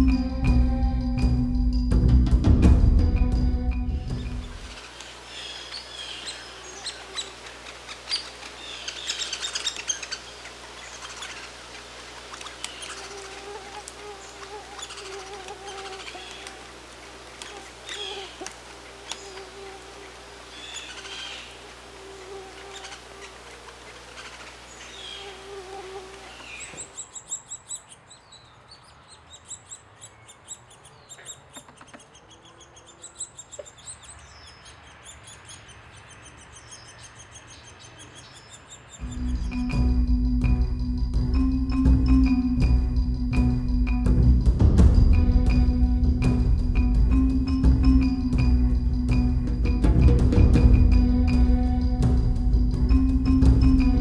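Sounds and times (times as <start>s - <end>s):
birds chirping: 3.1s - 54.0s
rapid high-pitched bird trill: 12.3s - 16.5s, 38.2s - 50.0s
low drone: 39.0s - 54.0s.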